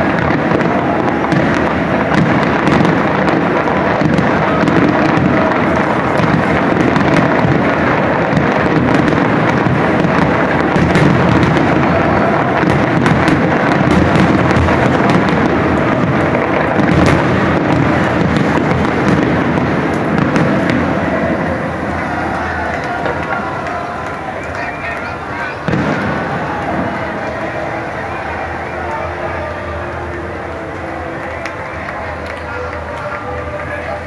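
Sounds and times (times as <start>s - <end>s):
fireworks barrage: 0.0s - 34.0s.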